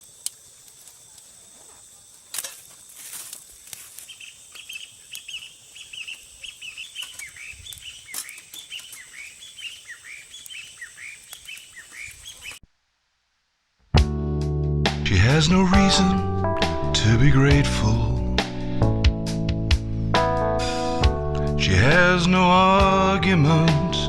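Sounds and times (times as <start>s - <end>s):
birds chirping: 3.8s - 12.6s.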